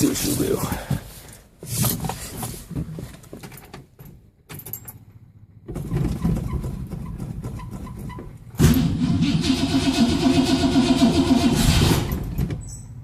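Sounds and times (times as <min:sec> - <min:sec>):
car engine starting and rumbling: 0:03.8 - 0:13.0.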